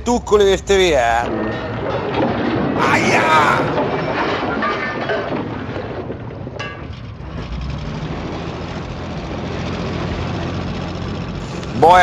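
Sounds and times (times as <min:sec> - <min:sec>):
boat engine running: 0:05.6 - 0:12.0.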